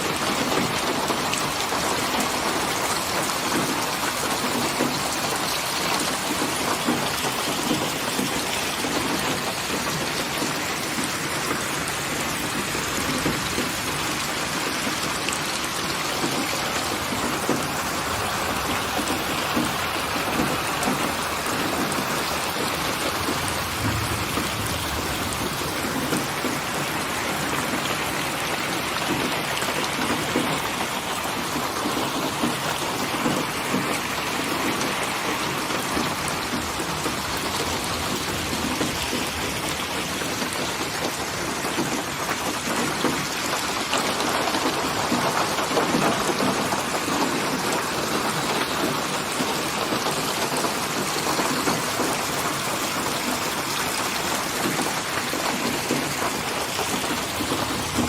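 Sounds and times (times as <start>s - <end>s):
dense rain falling: 0.0s - 58.0s
distant thunder rumble: 16.2s - 28.3s, 56.9s - 58.0s.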